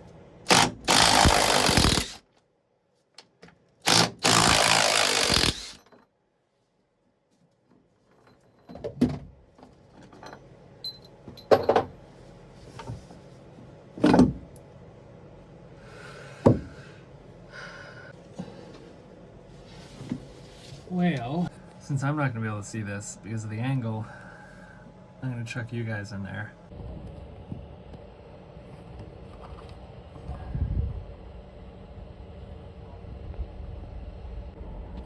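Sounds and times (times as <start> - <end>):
power drill boring into wood: 0.5 - 2.2, 3.8 - 5.8.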